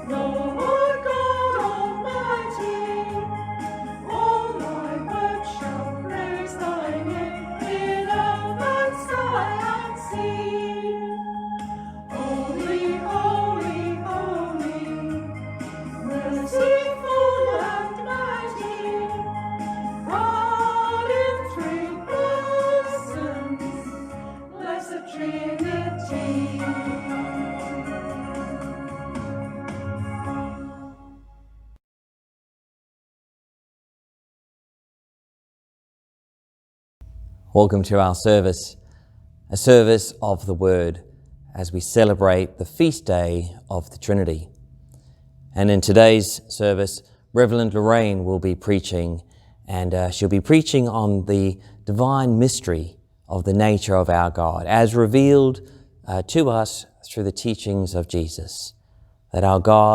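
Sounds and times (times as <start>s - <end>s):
group singing a hymn: 0.0s - 29.0s
instrumental accompaniment with bass: 0.0s - 31.8s.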